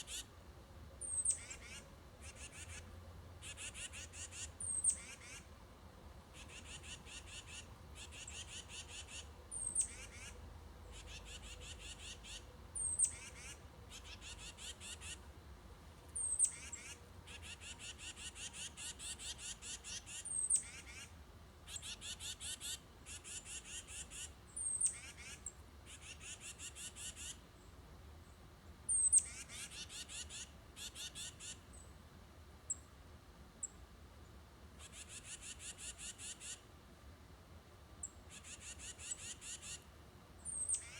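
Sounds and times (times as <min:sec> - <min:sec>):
songbird trilling: 0:06.4 - 0:15.2, 0:16.2 - 0:21.1, 0:38.3 - 0:39.8.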